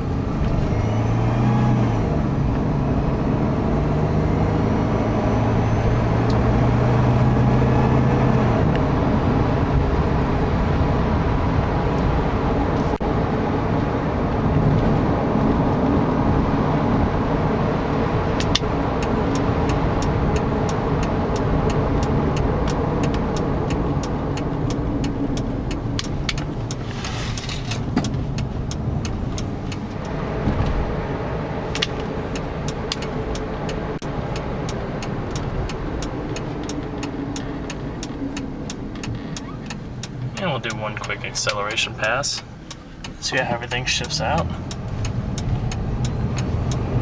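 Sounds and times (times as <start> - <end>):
car engine and road rumble: 0.0 - 47.0
quick regular ticking: 31.8 - 47.0.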